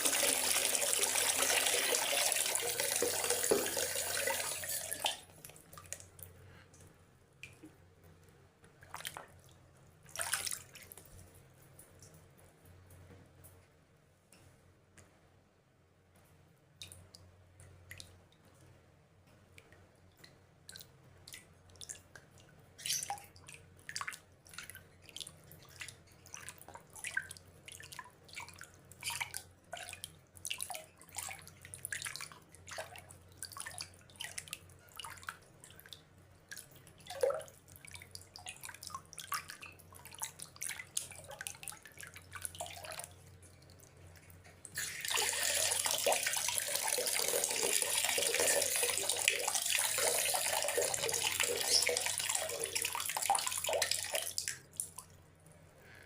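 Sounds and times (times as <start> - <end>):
rushing water: 0.0 - 5.2, 45.0 - 54.4.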